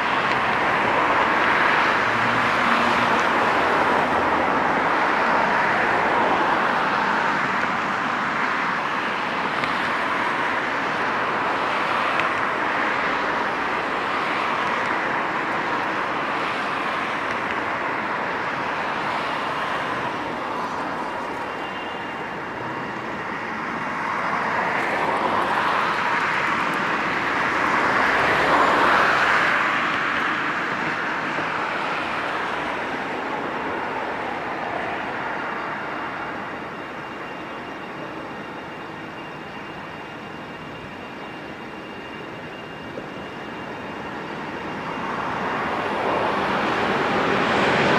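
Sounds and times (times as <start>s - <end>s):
passing vehicles rushing: 0.0s - 36.7s, 44.1s - 47.9s.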